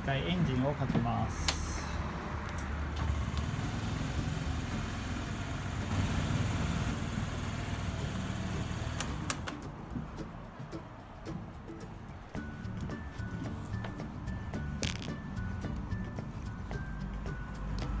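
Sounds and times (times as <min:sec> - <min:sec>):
scooter engine idling: 0:02.8 - 0:09.5
sharp clicks: 0:08.9 - 0:09.7.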